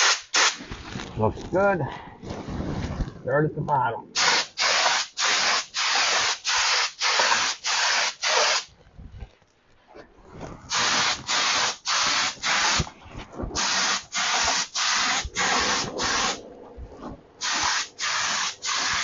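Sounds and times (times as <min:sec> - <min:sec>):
paint spray gun hissing bursts: 0:00.0 - 0:00.6, 0:04.2 - 0:08.7, 0:10.7 - 0:12.8, 0:13.6 - 0:16.4, 0:17.4 - 0:19.0.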